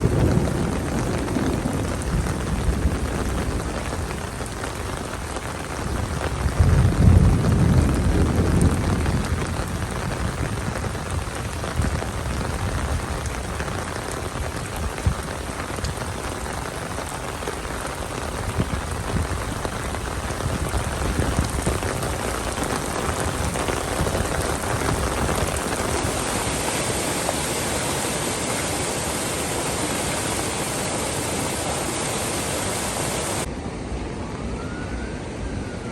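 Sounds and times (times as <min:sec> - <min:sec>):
steady rain falling: 0:00.0 - 0:33.5.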